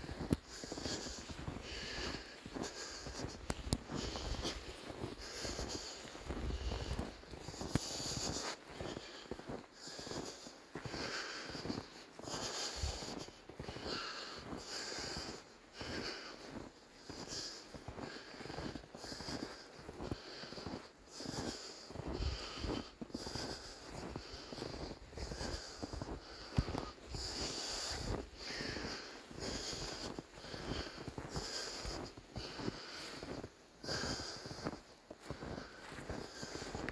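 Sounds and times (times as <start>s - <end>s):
person breathing hard: 0.0s - 36.9s.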